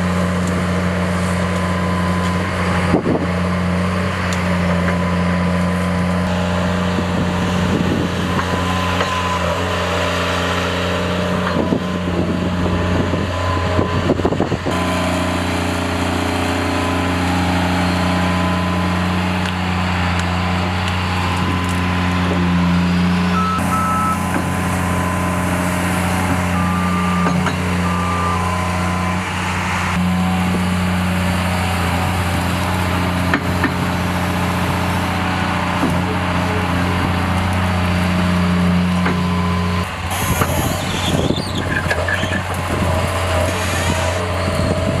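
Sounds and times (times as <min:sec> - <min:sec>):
heavy machine engine running: 0:00.0 - 0:45.0
high electronic beeps: 0:23.4 - 0:24.2, 0:26.4 - 0:29.1.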